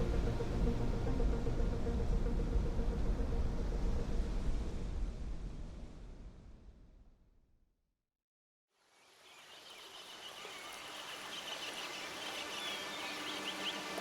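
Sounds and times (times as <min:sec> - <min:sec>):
wildlife chirps and whistles: 0:09.2 - 0:14.0.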